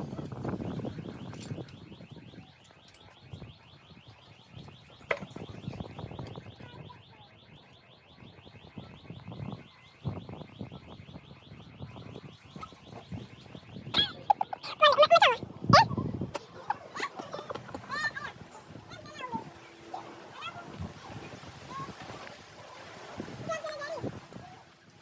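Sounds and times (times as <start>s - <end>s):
high-pitched chirping: 14.0s - 15.9s.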